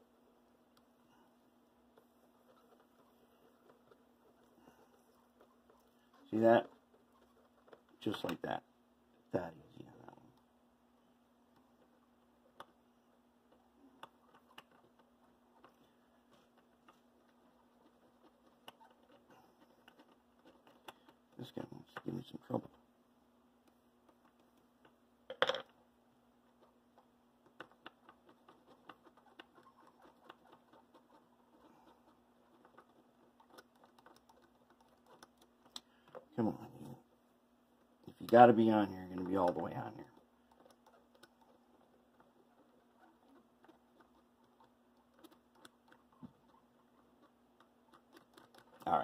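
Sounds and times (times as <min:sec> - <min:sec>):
faint steady hum: 0:00.0 - 0:49.0
soldering iron clicks and scratches: 0:38.0 - 0:49.0.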